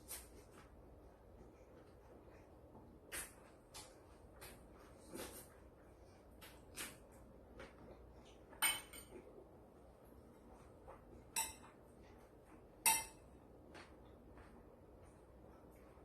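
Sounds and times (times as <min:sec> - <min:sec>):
utensils clinking against dish: 0:08.6 - 0:09.1, 0:11.3 - 0:11.8, 0:12.8 - 0:13.2.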